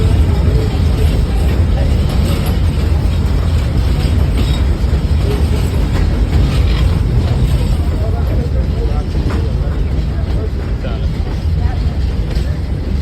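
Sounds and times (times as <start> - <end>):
train rolling along track: 0.0 - 13.0.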